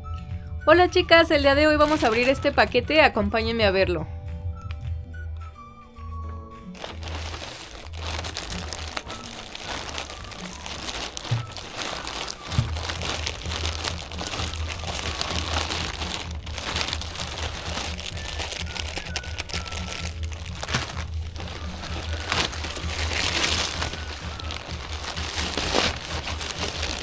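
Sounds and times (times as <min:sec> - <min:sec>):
background music with low beat: 0:00.0 - 0:27.0
package wrapping crinkling: 0:01.8 - 0:02.8, 0:06.8 - 0:27.0.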